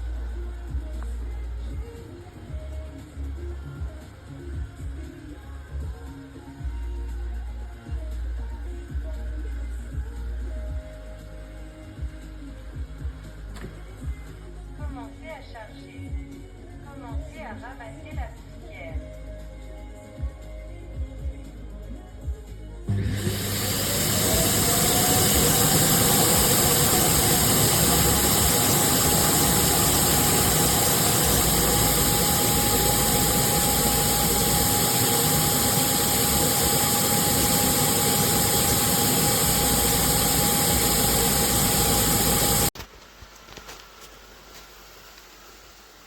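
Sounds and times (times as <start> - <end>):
vacuum suction fan motor whining: 22.9 - 42.7.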